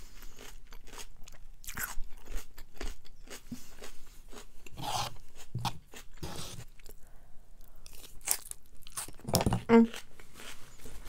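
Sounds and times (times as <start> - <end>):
person chewing noodle salad: 0.0 - 11.0
crunchy rasping scrapes: 3.8 - 6.8.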